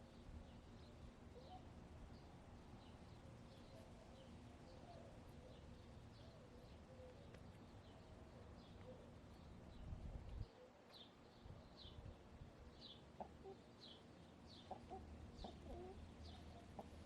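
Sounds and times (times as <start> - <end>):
small birds chirping: 0.0 - 17.0
hen murmuring: 14.7 - 17.0.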